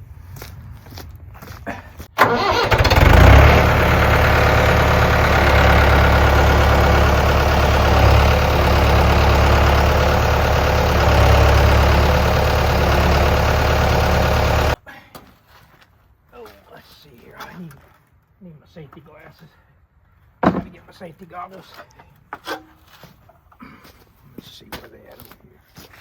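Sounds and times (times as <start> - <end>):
engine starting and idling: 2.2 - 14.8.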